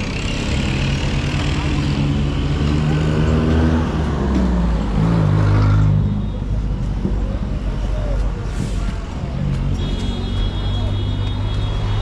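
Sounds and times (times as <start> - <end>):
vehicle engine revving: 0.0 - 6.1.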